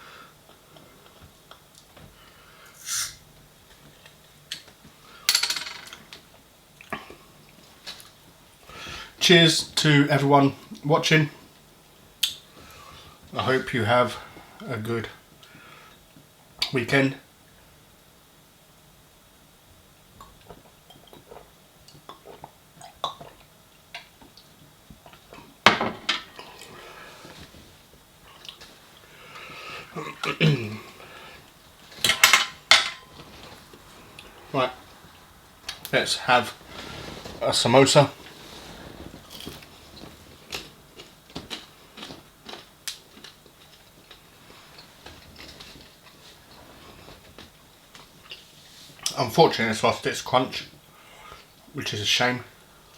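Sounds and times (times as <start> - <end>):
soft chewing: 26.3 - 32.0, 38.2 - 49.1
cutlery and dishes clinking: 32.0 - 33.2.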